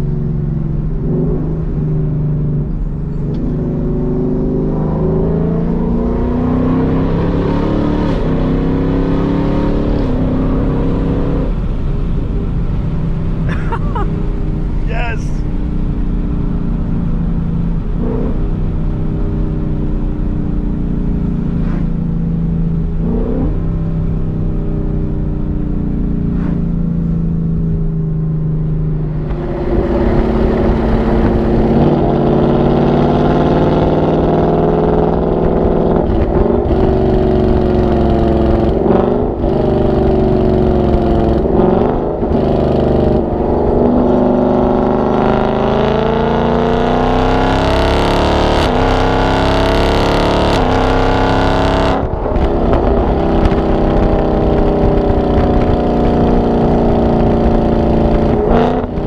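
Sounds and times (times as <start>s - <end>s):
car engine deep note: 9.6s - 59.0s
car accelerating through gears: 28.8s - 59.0s.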